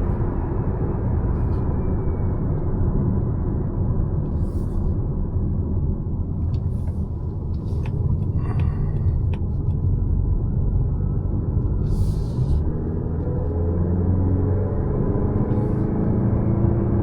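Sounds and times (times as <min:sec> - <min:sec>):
car engine and tyres rumbling: 0:00.0 - 0:17.0
brief tone: 0:01.4 - 0:02.6.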